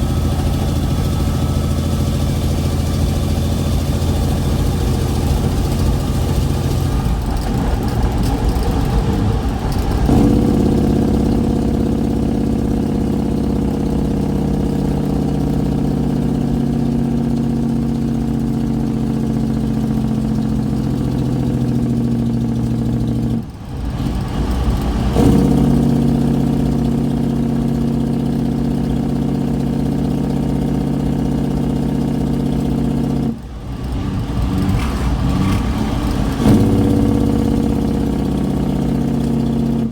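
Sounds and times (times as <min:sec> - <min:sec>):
diesel truck engine exhaust: 0:00.0 - 0:39.9.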